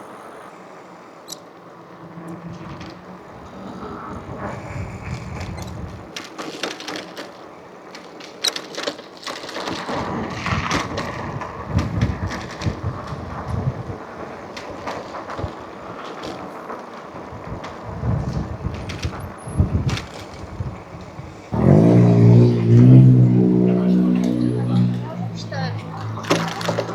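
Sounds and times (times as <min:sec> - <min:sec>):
road noise: 0:00.0 - 0:26.9
bike rattling clicks and knocks: 0:01.3 - 0:26.9
wind on microphone: 0:02.6 - 0:06.2, 0:10.0 - 0:15.6, 0:17.2 - 0:26.9.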